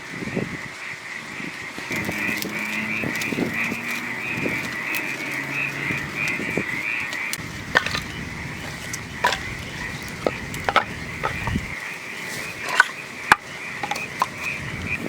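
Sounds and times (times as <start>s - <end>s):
frogs calling in chorus: 0.0s - 15.0s
sharp clicks and knocks: 7.1s - 11.6s.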